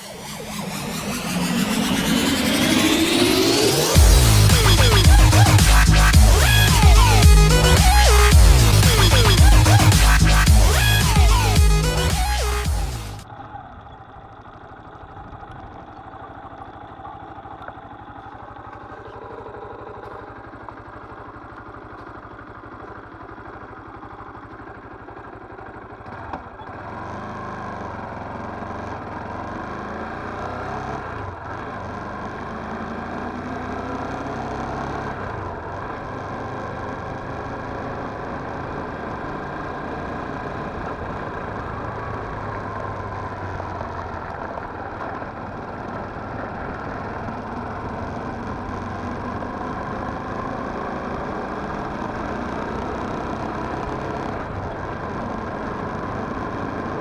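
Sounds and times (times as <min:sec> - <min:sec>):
motorcycle engine revving: 0:00.0 - 0:57.0
motorcycle engine idling: 0:13.3 - 0:27.0.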